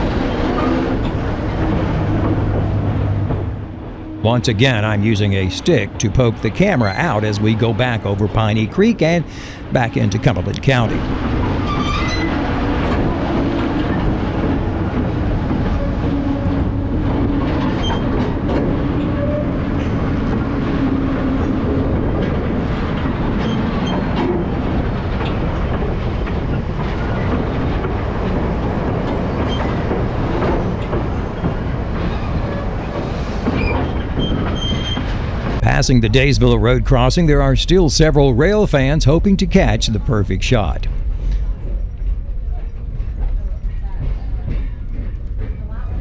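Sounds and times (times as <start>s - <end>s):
train wheels rumbling on rail: 0.0s - 40.2s, 40.9s - 46.0s
clicks of train wheels: 11.0s - 35.6s
low steady hum: 35.6s - 41.0s.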